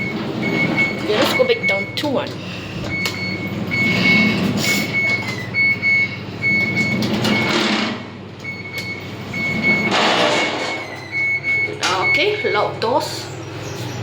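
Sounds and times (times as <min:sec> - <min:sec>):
sliding doors closing: 0:00.0 - 0:01.7, 0:02.7 - 0:12.1
lift beeping: 0:00.0 - 0:14.0
low hum of lift car: 0:00.0 - 0:14.0.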